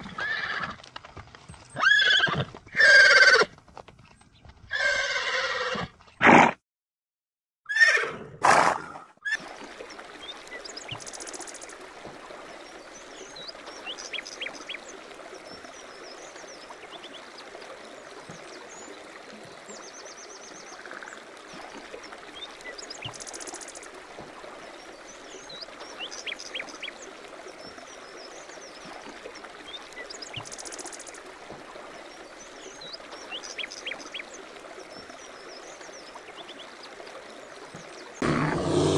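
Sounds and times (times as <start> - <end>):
running water: 9.3 - 38.9.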